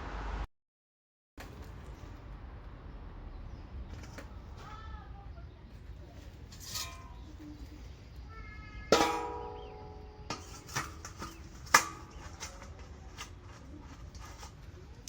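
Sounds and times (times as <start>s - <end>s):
metal bowl clanging: 6.5s - 7.7s, 8.9s - 13.3s
metal bowls clinking: 6.5s - 7.7s, 8.9s - 14.5s.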